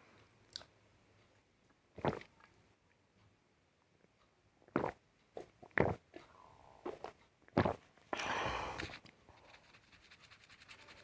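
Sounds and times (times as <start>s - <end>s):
mouth clicks and smacks: 0.5s - 0.7s, 4.7s - 9.2s.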